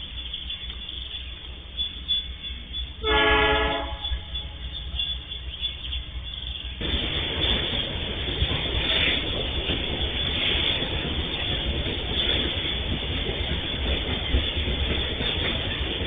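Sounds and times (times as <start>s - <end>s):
train rushing noise: 0.0s - 16.0s
train horn blast: 1.8s - 5.4s
steady low rumble: 3.8s - 16.0s.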